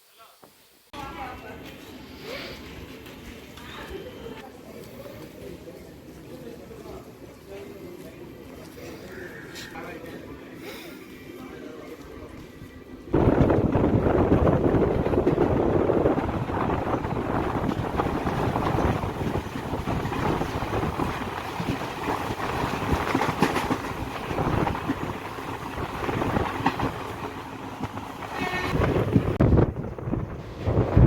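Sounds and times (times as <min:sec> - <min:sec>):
train rumbling and rattling: 0:09.7 - 0:31.0
wheels clacking over rail joints: 0:13.2 - 0:29.4.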